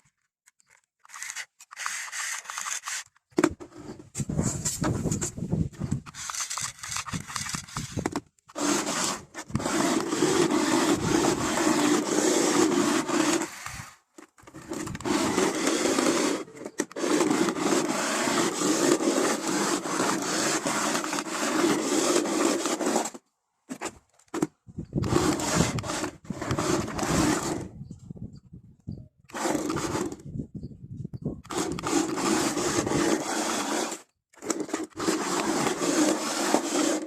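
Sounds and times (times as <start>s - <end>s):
toy car motor whirring: 0.7s - 3.3s, 5.8s - 23.2s, 25.0s - 27.7s, 29.3s - 30.2s, 31.4s - 37.0s
wheels rolling on hard surface: 1.3s - 23.2s, 24.4s - 27.7s, 29.3s - 30.2s, 31.5s - 37.0s.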